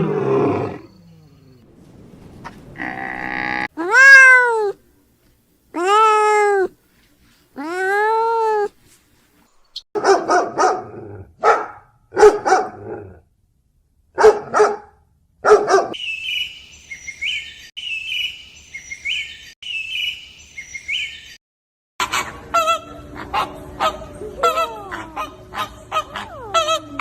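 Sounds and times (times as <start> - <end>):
dog barking: 10.0 - 13.0, 14.2 - 16.0, 25.2 - 27.0
bird chirping: 16.0 - 21.4.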